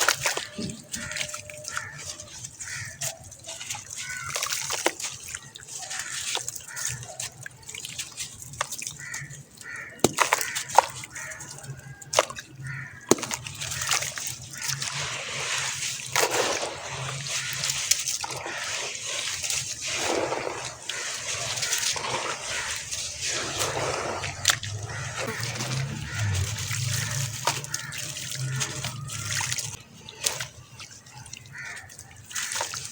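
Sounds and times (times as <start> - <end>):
water sloshing and dripping: 0.0 - 32.9
cement shapes crumbling in water: 8.1 - 30.6.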